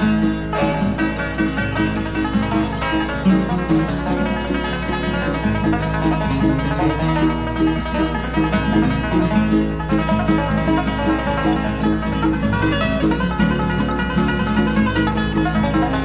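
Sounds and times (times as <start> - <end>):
banjo picking: 0.0 - 16.0
bluegrass band playing: 0.0 - 16.0.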